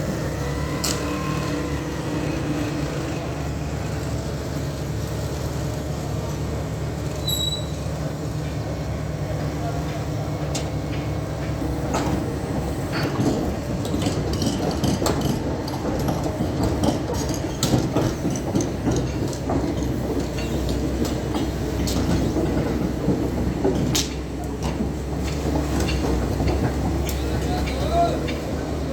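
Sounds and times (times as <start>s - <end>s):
excavator engine droning: 0.0s - 7.3s
metal clanks and rattles: 12.9s - 28.4s.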